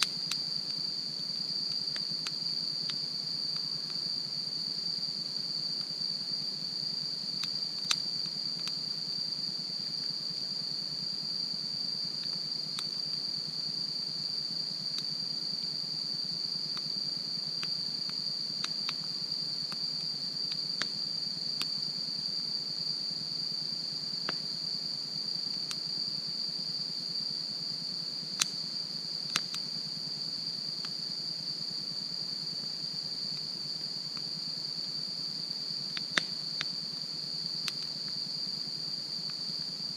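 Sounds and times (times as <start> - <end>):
high-pitched insect chorus: 0.0 - 39.9
campfire crackling and popping: 7.4 - 8.8, 36.0 - 36.4.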